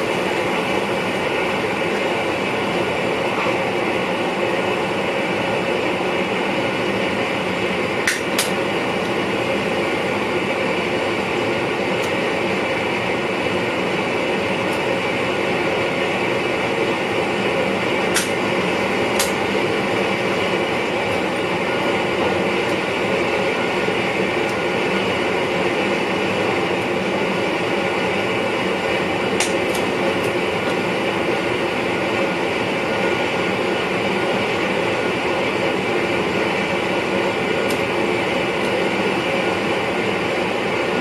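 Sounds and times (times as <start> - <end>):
train running noise in cab: 0.0 - 41.0.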